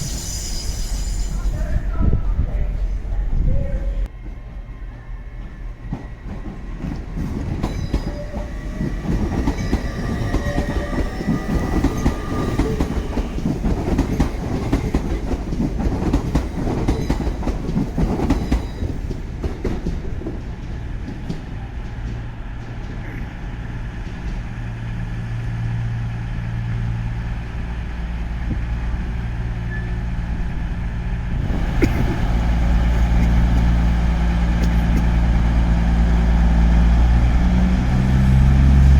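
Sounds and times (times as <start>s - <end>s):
train wheels clattering over rails: 5.4s - 25.0s
diesel engine humming: 30.5s - 38.9s.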